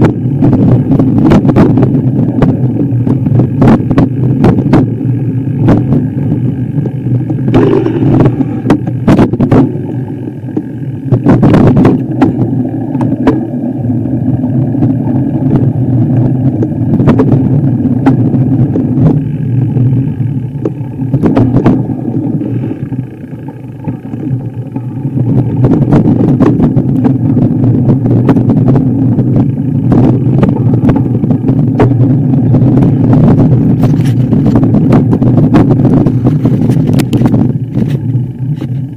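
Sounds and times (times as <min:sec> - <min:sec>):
vehicle engine running under load: 0:02.6 - 0:27.2.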